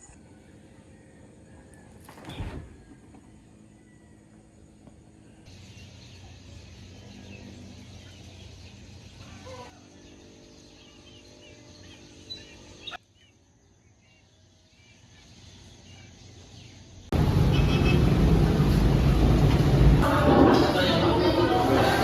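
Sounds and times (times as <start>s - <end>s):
small birds chirping: 2.7s - 17.1s.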